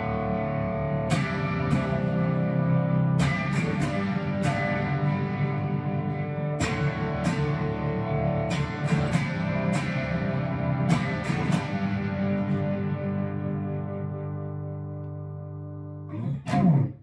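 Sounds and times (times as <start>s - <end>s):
electric guitar chords and notes: 0.0s - 17.0s
sharp guitar pick attacks: 16.1s - 17.0s.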